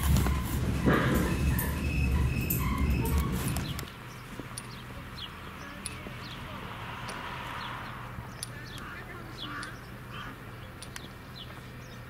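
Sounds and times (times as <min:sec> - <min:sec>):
birds chirping: 0:00.0 - 0:12.0
steady low hum: 0:00.0 - 0:12.0
light clicks: 0:10.8 - 0:11.2.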